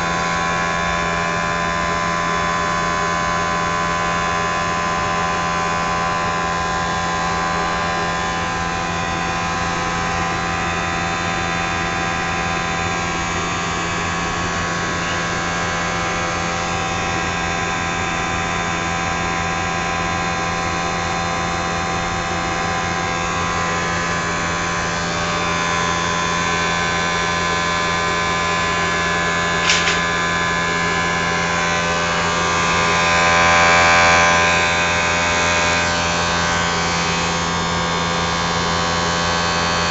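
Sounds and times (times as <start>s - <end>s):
blower motor humming and whining: 0.0s - 39.9s
brief click: 29.6s - 30.1s.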